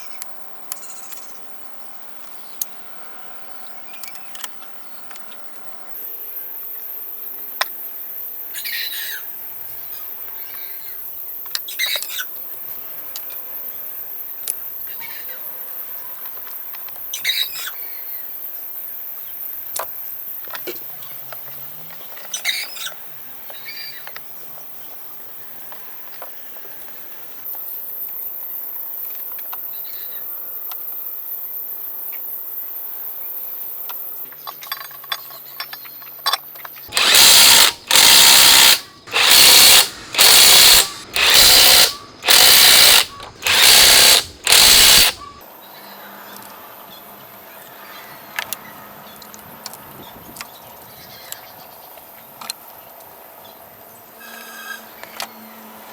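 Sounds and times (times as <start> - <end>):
faint clicks and handling: 33.9 - 45.4
power tool bursts: 36.9 - 45.4.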